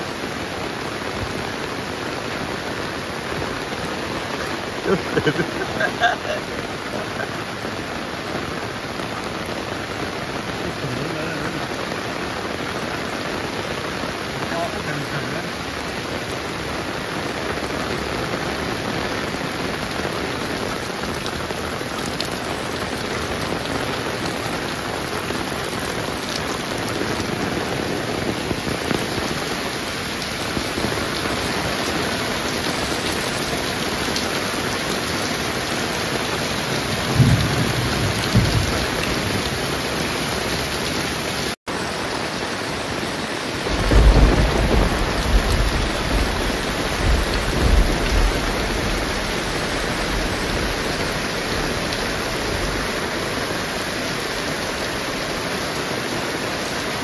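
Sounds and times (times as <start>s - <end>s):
heavy rain falling: 0.0s - 57.0s
deep thunder rumbles: 36.6s - 40.4s, 43.6s - 52.9s.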